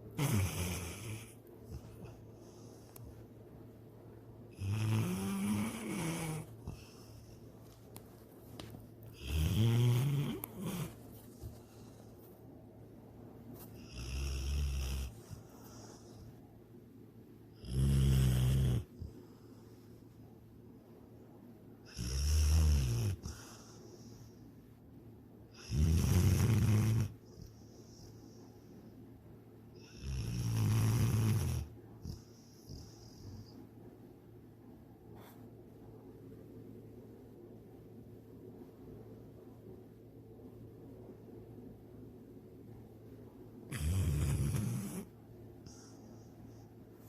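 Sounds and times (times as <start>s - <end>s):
dog snoring: 0.1s - 2.9s, 4.5s - 7.4s, 9.1s - 12.0s, 13.8s - 16.3s, 17.6s - 19.6s, 21.8s - 24.4s, 25.5s - 28.4s, 29.8s - 33.6s, 43.7s - 46.6s.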